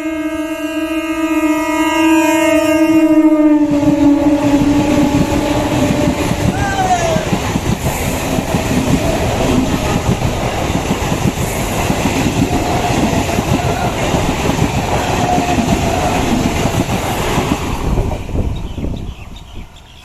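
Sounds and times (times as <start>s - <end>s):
train passing with loud rumble: 0.0s - 20.0s
steel wheels clattering over rails: 3.9s - 18.3s.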